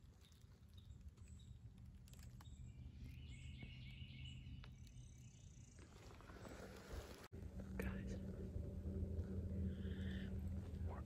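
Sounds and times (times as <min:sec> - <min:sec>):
low steady rumble: 0:00.0 - 0:11.0
bird singing: 0:00.1 - 0:06.2.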